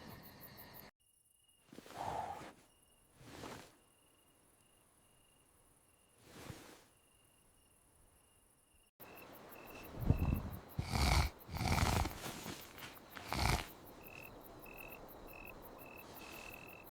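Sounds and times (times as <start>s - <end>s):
crickets chirping: 0.0s - 16.9s
cartoon snoring: 10.1s - 14.2s.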